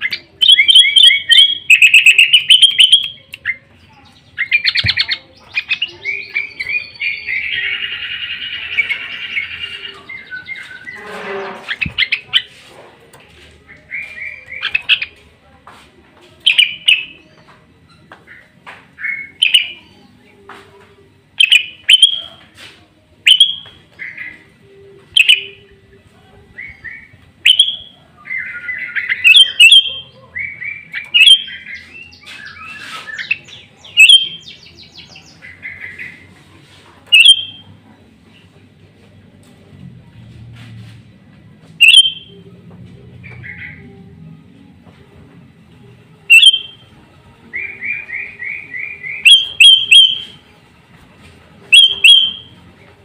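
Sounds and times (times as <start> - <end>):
bird singing upward-sweeping notes: 46.3 - 46.8, 47.6 - 50.4, 51.7 - 52.5.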